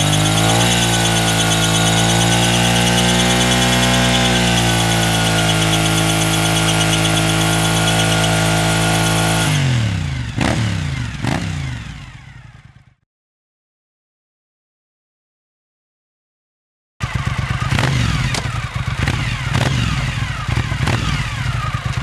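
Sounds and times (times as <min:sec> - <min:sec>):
tyre squealing: 0:00.0 - 0:09.3
motorcycle engine at high revs: 0:00.0 - 0:13.0, 0:17.0 - 0:22.0.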